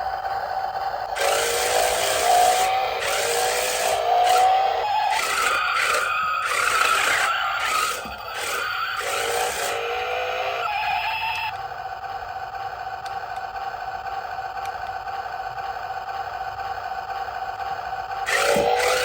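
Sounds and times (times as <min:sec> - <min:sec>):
toy electric motor whining: 0:00.0 - 0:13.7, 0:18.1 - 0:19.0.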